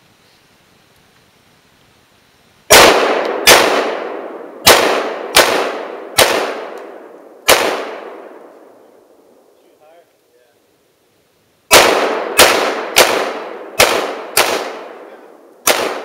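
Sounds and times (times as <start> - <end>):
rifle shots echoing: 2.7 - 9.4, 11.7 - 16.0.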